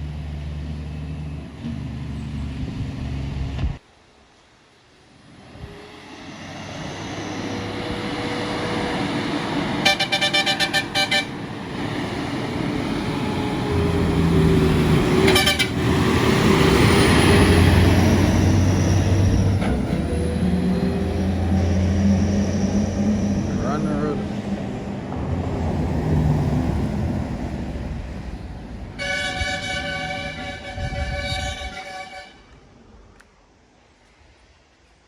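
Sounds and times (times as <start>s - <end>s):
heavy trucks driving past: 0.0s - 3.8s, 5.3s - 32.4s
truck horn toots: 9.8s - 11.4s, 15.2s - 15.9s, 29.0s - 32.4s.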